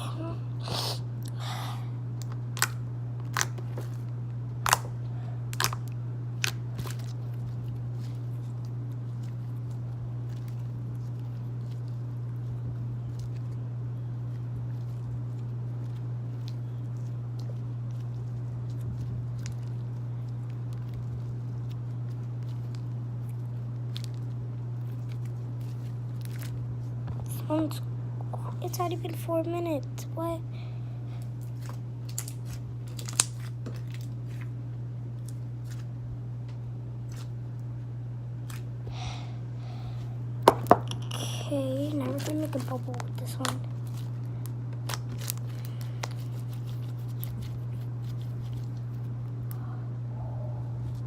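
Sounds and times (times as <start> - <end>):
steady low hum: 0.0 - 51.0
slime squished by hand: 41.9 - 49.6.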